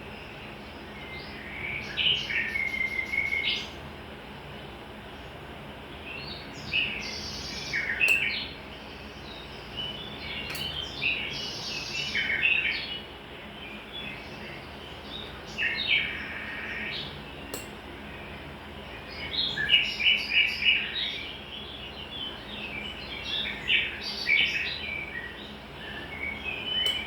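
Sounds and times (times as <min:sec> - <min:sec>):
songbirds chirping: 0:00.0 - 0:27.0
sharp clicks: 0:10.5 - 0:10.8.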